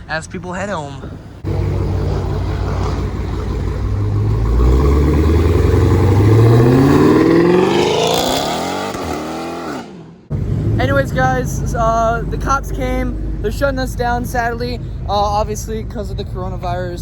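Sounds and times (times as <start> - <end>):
car accelerating past: 1.4 - 13.5.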